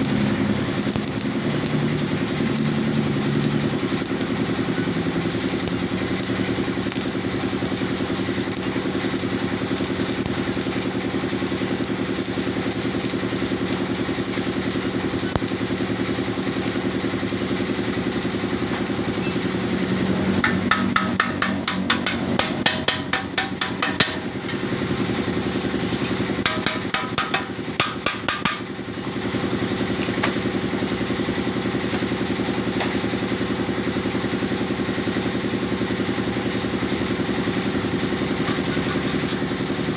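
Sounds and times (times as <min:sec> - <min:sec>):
rapid metallic ticks and taps: 0:00.0 - 0:04.3, 0:05.4 - 0:07.8, 0:08.4 - 0:10.8, 0:20.4 - 0:24.8, 0:26.4 - 0:28.6
steady machine hum: 0:00.0 - 0:27.7.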